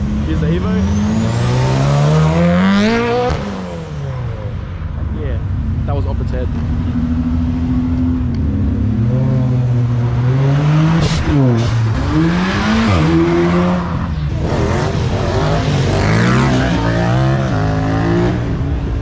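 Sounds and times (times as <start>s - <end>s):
car engine revving hard: 0.0s - 4.0s, 8.8s - 18.6s.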